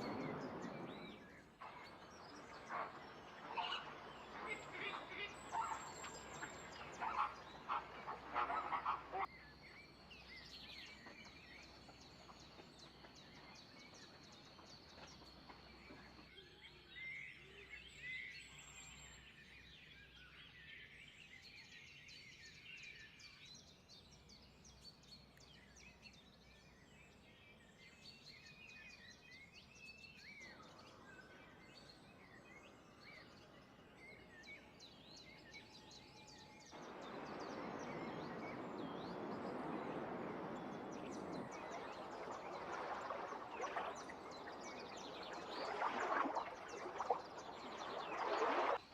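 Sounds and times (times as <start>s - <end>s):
small birds chirping: 0.0s - 19.0s, 30.1s - 48.9s.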